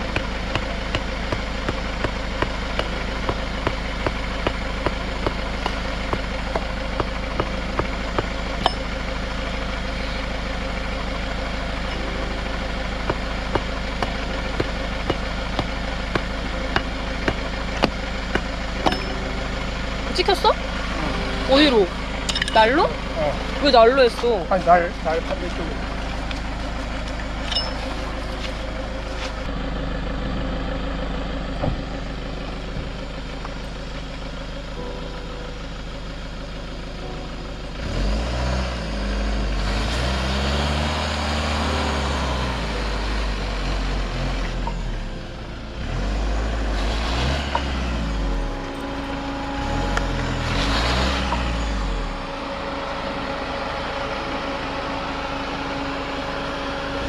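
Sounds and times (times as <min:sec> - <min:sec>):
van engine revving: 0:00.0 - 0:57.0.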